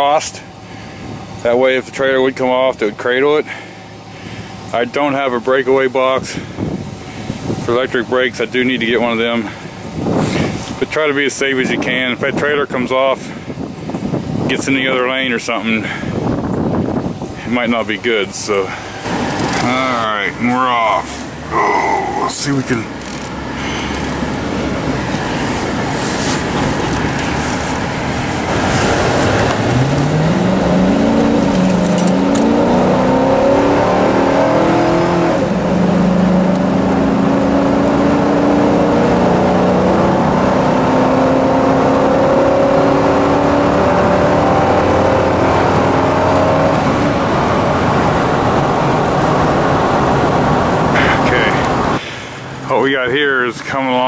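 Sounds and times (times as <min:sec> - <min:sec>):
tyre and road noise: 0:00.0 - 0:54.0
pickup truck engine accelerating: 0:15.8 - 0:53.1.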